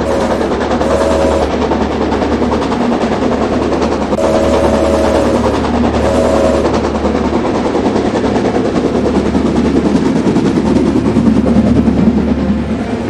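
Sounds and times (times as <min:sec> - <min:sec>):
brief steady tone: 0:00.0 - 0:01.6, 0:04.2 - 0:06.8
toy train rattling: 0:00.0 - 0:01.8
low hum: 0:00.0 - 0:02.2, 0:04.1 - 0:07.3.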